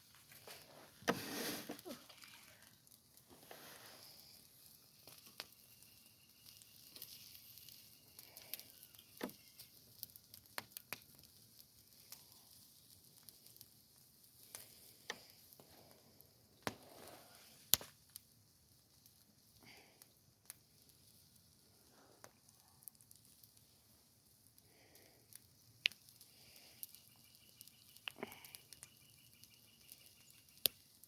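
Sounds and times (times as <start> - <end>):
faint hiss: 0.0 - 9.8
campfire crackling and popping: 0.0 - 31.0.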